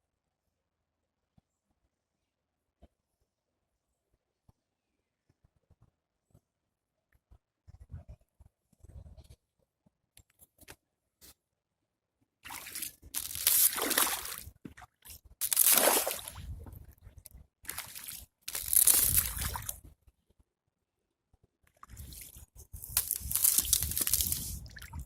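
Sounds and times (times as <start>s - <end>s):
water sloshing and splashing: 12.4s - 19.9s, 21.8s - 25.0s.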